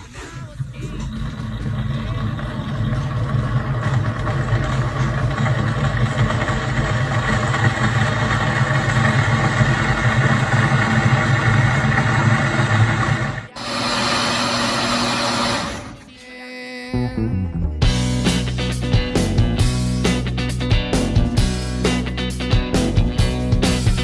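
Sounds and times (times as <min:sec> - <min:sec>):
blender motor running: 0:00.6 - 0:16.1.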